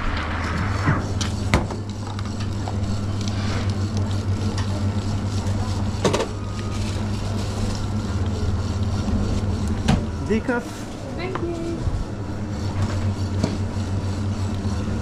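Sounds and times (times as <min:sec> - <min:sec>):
espresso machine humming and hissing: 0:00.2 - 0:15.0
coffee gear clacks: 0:01.2 - 0:10.4.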